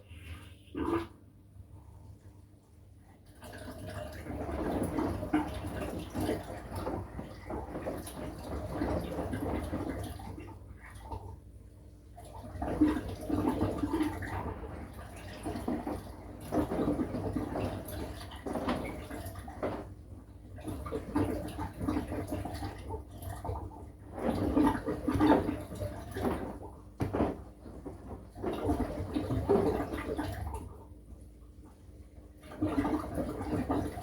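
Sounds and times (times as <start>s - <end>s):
washing machine hum: 0.0s - 34.0s
water sloshing in washing machine: 0.0s - 34.0s.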